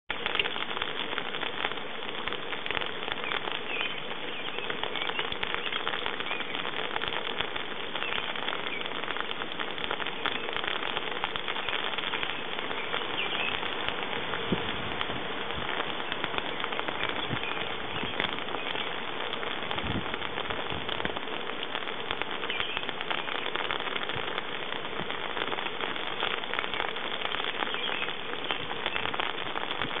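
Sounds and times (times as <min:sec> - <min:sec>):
rain pattering on gravel: 0:00.0 - 0:30.0.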